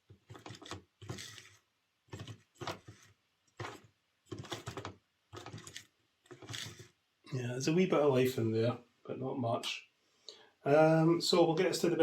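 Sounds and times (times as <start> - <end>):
model locomotive motor rattling and grinding: 5.4 - 6.9.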